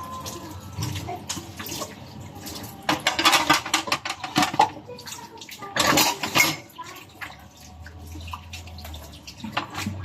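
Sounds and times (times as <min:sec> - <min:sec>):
water running and splashing: 0:00.0 - 0:10.0
scattered clicks and knocks: 0:02.9 - 0:04.8.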